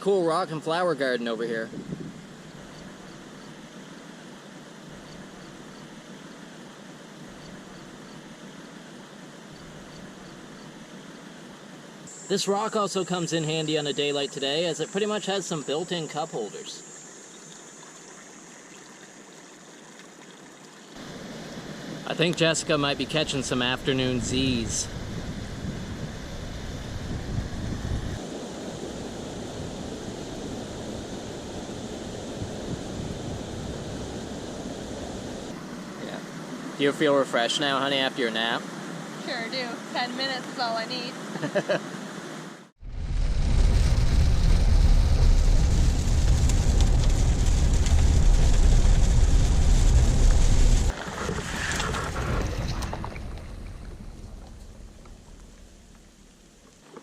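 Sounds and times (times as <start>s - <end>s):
wind buffeting microphone: 1.6s - 3.5s, 21.0s - 35.6s, 42.8s - 56.4s
waterfall and river rushing: 28.2s - 42.7s.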